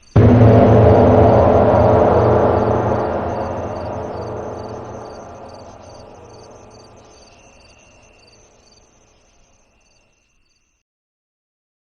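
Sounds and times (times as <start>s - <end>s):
low rumbling drone: 0.2s - 7.2s.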